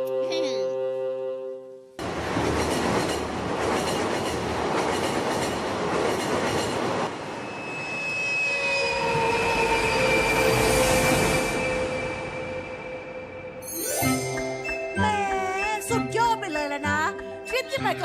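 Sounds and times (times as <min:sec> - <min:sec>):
high held tones: 0:07.4 - 0:17.9.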